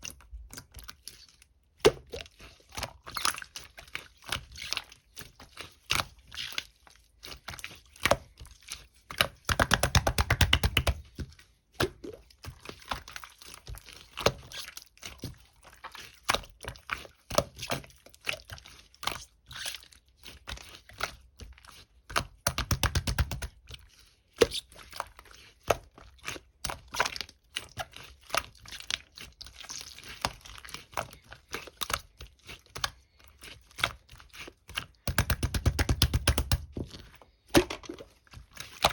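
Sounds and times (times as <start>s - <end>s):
slime squishing and popping: 0.0s - 6.6s, 7.3s - 18.6s, 22.0s - 23.6s, 24.4s - 38.9s.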